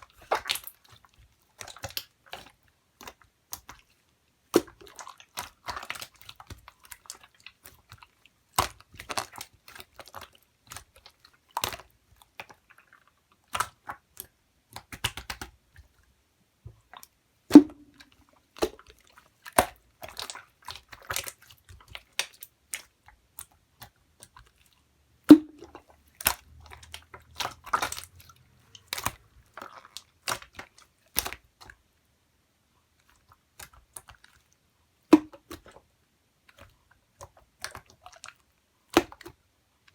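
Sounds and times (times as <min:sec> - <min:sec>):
slime clicking and popping: 0:13.5 - 0:15.6.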